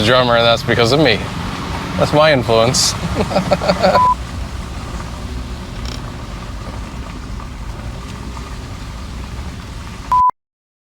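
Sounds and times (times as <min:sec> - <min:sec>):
road and engine rumble in cabin: 0:00.0 - 0:10.3
short pure beep: 0:04.0 - 0:04.2, 0:10.1 - 0:10.4.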